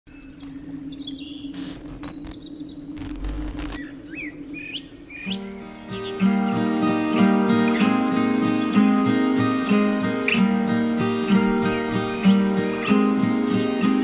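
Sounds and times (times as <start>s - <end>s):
birds chirping: 0.1s - 14.0s
low hum: 1.4s - 4.6s
acoustic guitar music: 5.4s - 14.0s.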